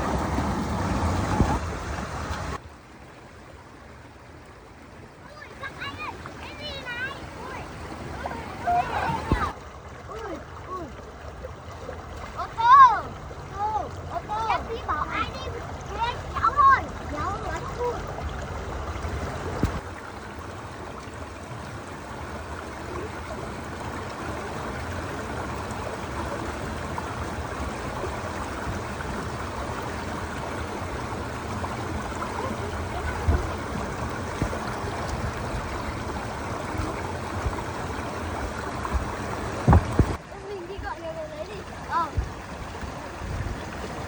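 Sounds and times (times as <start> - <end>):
flowing water rushing: 0.0 - 44.0
brief knocks: 39.6 - 40.2.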